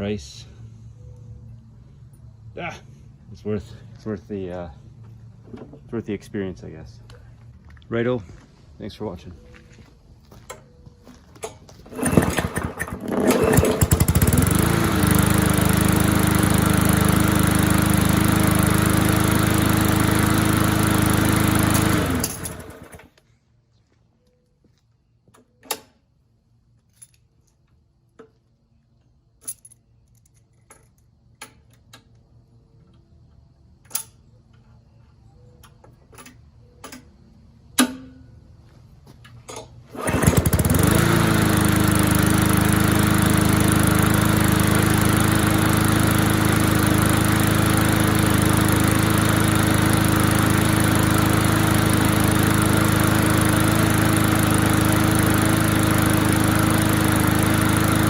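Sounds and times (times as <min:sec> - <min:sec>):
lawnmower engine running: 0:11.3 - 0:23.2, 0:39.3 - 0:58.0.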